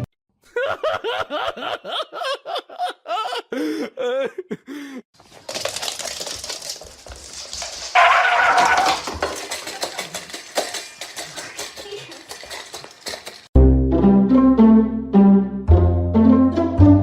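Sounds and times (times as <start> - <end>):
person laughing hard: 0.4 - 5.1
steady rustling: 5.2 - 13.6.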